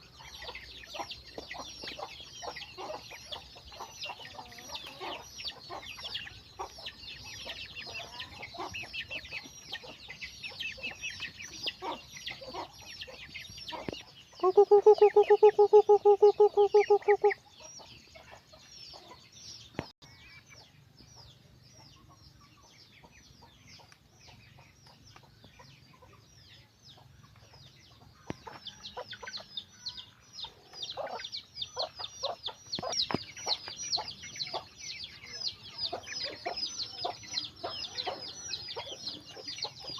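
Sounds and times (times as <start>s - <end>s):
hens clucking: 0.0s - 19.2s, 30.4s - 39.9s
chicks cheeping: 0.0s - 39.9s
loud pulsing call: 14.4s - 17.4s.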